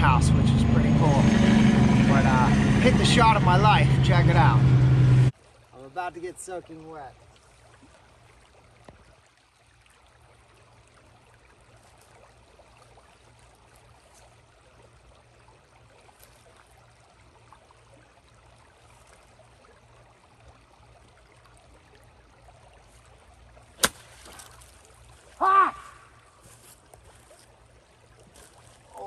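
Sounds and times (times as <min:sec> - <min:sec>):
faint outdoor hiss: 0:05.4 - 0:29.0
golf club striking ball: 0:23.8 - 0:24.8.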